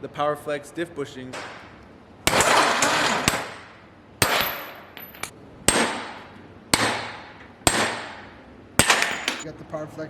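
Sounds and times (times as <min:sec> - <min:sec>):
hammer striking metal: 0:02.3 - 0:09.4.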